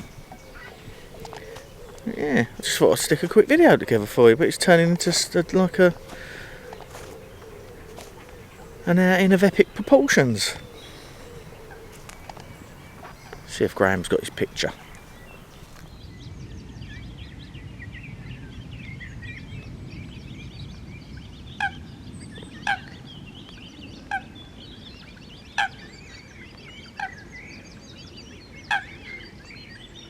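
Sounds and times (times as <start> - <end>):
small birds chirping: 0.0 - 16.6.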